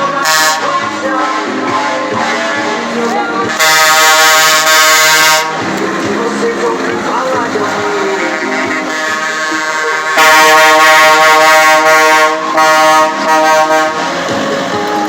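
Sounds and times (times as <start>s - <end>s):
truck air horn blasts: 0.2s - 2.0s, 3.5s - 5.6s, 8.0s - 14.4s.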